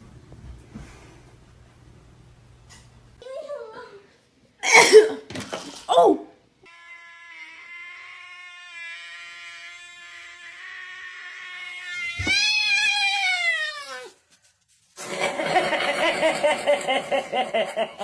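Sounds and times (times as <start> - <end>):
cat yowling: 6.7 - 14.2.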